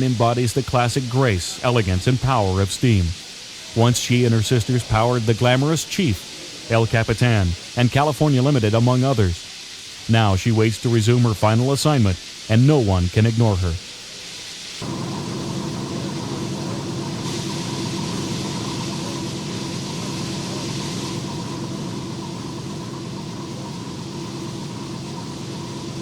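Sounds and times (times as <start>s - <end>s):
hiss: 0.0s - 26.0s
locomotive idling hum: 14.1s - 26.0s.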